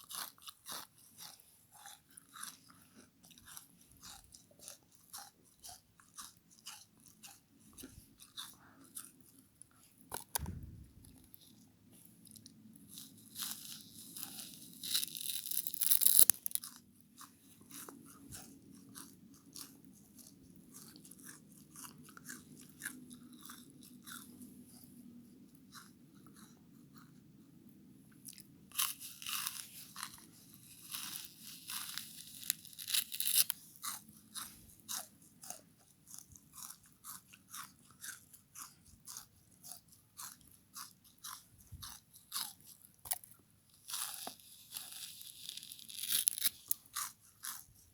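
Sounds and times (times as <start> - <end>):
chewing clicks: 0.0 - 11.2, 14.2 - 24.4, 33.4 - 44.9, 46.4 - 47.7
faint low hum: 10.3 - 13.3.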